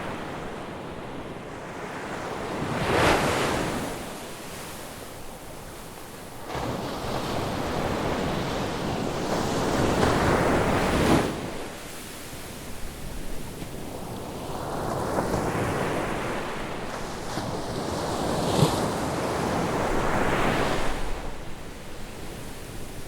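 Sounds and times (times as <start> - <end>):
ocean waves breaking on beach: 0.0 - 23.0.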